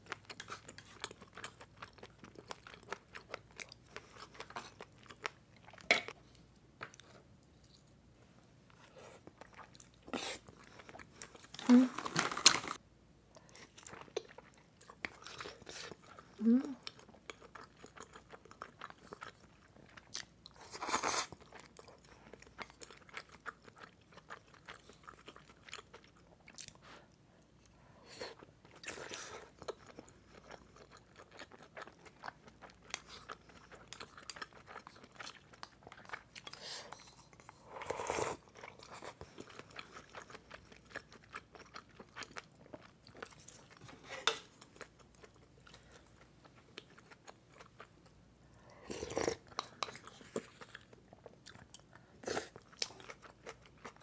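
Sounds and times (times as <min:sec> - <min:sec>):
person chewing and crunching food: 0:00.0 - 0:54.0.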